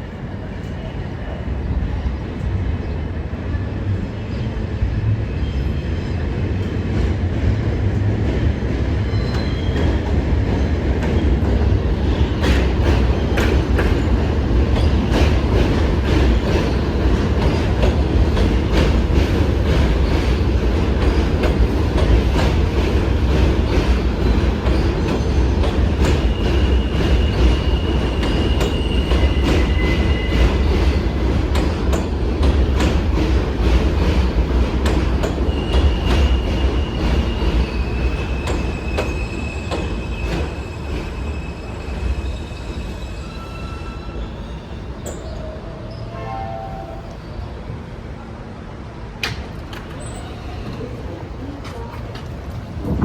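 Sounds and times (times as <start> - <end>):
subway car rumbling along track: 0.0 - 53.0
high wheel squeal: 35.4 - 47.5.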